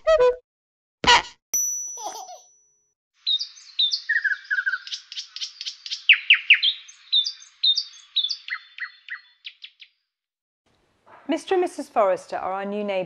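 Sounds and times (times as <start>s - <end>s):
songbird chirping and trilling: 3.2s - 10.1s.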